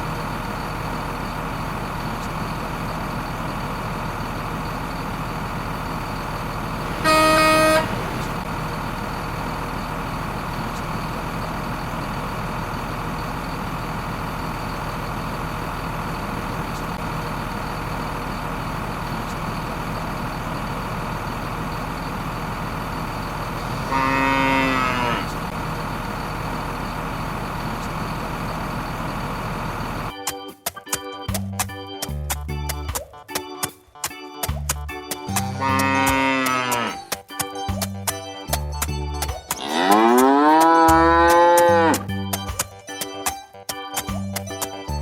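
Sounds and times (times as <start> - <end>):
vehicle engine hum: 0.0 - 30.2, 34.5 - 42.7
horn toot: 6.8 - 8.4, 23.7 - 25.4, 35.5 - 37.1
cow mooing: 6.9 - 8.4, 23.7 - 25.4, 35.6 - 37.1, 39.6 - 42.1.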